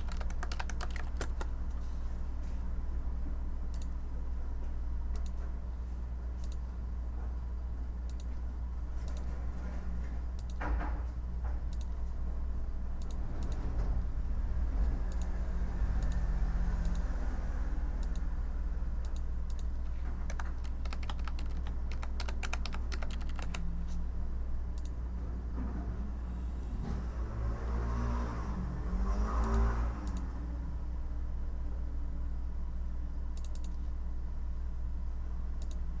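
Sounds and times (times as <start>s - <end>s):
typing on computer keyboard: 0.0s - 1.6s, 19.1s - 23.7s
steady low hum: 0.0s - 27.6s, 30.0s - 36.0s.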